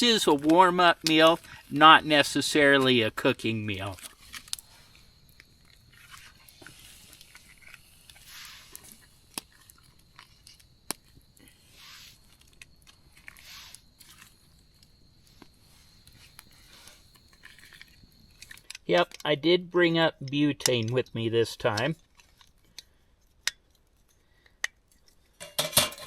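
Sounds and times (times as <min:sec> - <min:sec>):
camp gear clicks and knocks: 0:24.6 - 0:26.0.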